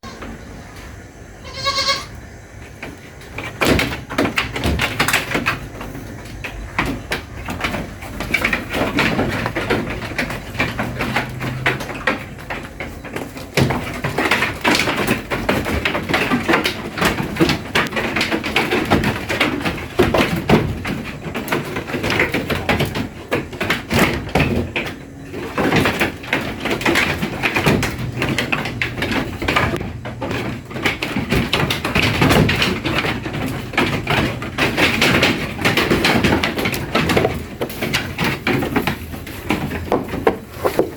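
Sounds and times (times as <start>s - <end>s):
knocks and rustles: 0.0s - 40.9s
goats bleating: 1.4s - 2.2s.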